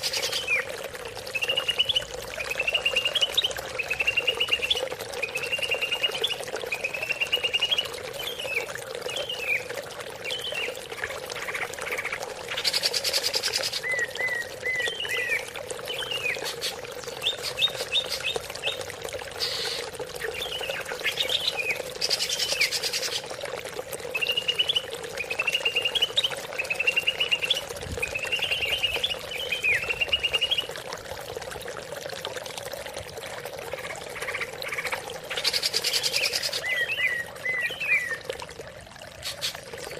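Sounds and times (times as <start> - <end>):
trickling water: 0.0 - 39.9
bird singing whistled phrases: 36.6 - 38.2.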